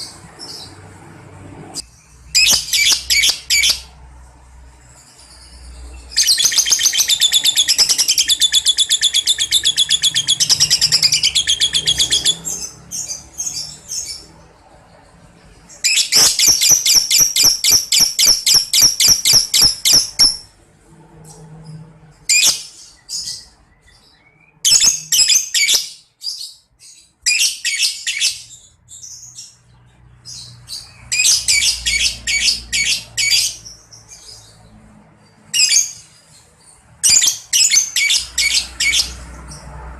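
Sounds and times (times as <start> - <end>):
lovebird chattering: 2.4 - 3.9, 6.1 - 14.3, 15.8 - 20.5, 30.3 - 34.4, 35.5 - 36.1, 37.0 - 39.3.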